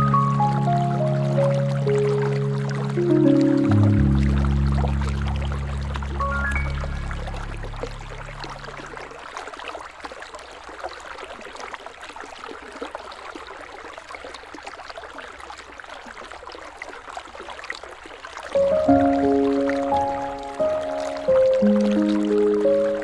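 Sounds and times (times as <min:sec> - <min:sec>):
low held music tones: 0:00.0 - 0:09.2, 0:18.6 - 0:23.0
river water babbling: 0:00.0 - 0:23.0.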